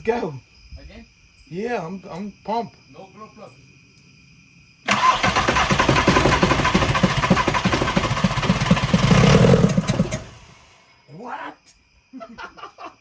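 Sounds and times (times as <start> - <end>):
diesel engine cranking and running rough: 4.9 - 10.7.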